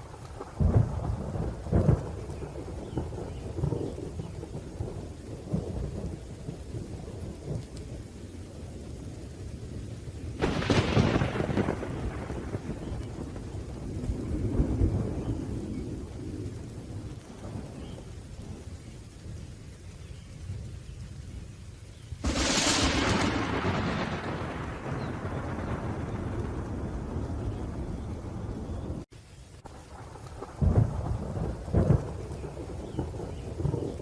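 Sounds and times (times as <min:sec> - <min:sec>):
steady rain: 0:00.0 - 0:34.0
thunder rumbling: 0:00.0 - 0:34.0
sharp thunderclap: 0:00.4 - 0:07.6, 0:10.4 - 0:18.6, 0:22.2 - 0:29.1, 0:29.7 - 0:34.0.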